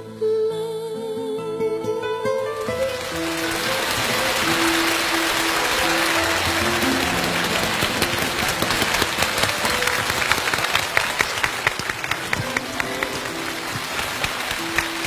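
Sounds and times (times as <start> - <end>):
soft music: 0.0 - 15.0
audience applauding: 2.5 - 15.0.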